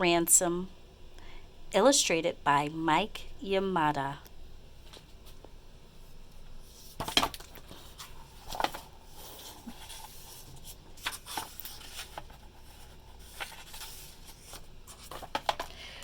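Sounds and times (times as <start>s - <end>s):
book pages rustling: 6.6s - 15.8s.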